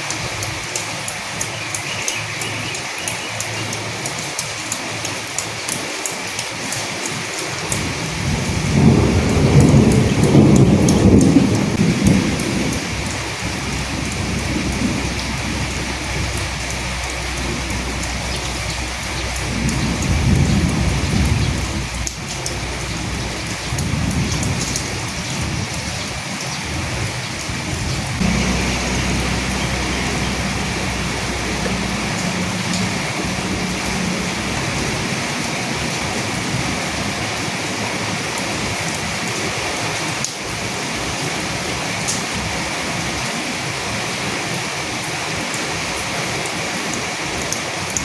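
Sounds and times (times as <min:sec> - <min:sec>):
raindrops ticking: 0:00.0 - 0:43.3
steady rain: 0:00.0 - 0:48.0
thunder rumbling: 0:07.7 - 0:38.9.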